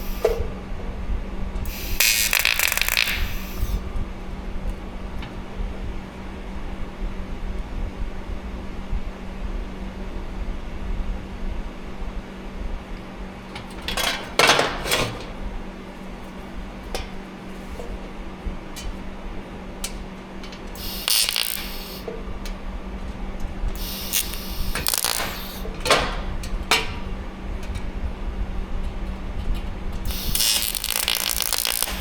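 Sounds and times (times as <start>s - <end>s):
short hissing bursts: 0.0s - 0.4s, 1.7s - 3.8s, 20.7s - 22.1s, 23.8s - 25.7s, 30.0s - 32.0s
steady low hum: 0.0s - 32.0s.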